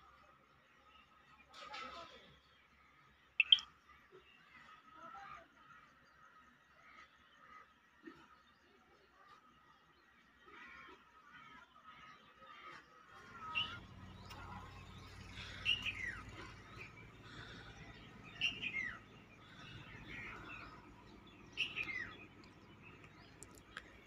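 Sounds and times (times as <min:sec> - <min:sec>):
bird chirping: 0:03.4 - 0:03.7, 0:13.3 - 0:24.0
faint low hum: 0:13.2 - 0:24.0.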